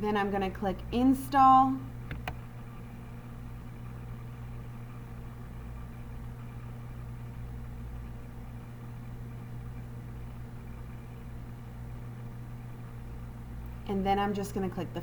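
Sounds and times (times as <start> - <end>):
low hum with faint hiss: 0.0 - 15.0.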